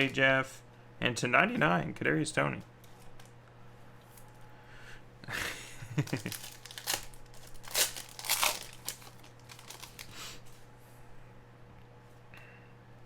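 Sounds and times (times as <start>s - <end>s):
foil wrapper crinkling and tearing: 6.0s - 10.5s.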